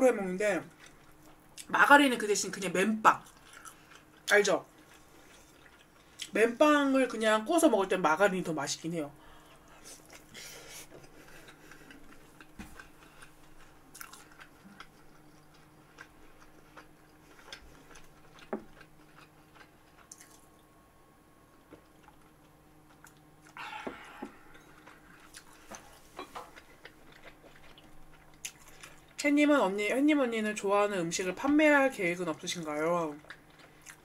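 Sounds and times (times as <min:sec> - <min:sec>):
person chewing: 0:00.7 - 0:01.7, 0:03.2 - 0:06.4, 0:09.4 - 0:20.7, 0:21.6 - 0:29.2, 0:33.1 - 0:34.0
wet mouth clicks: 0:20.0 - 0:20.5.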